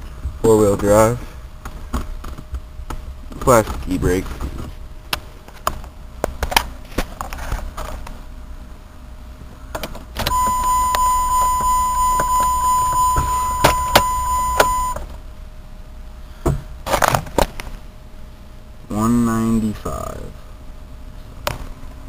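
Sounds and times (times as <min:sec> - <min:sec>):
electronic beep tone: 0:10.3 - 0:15.0.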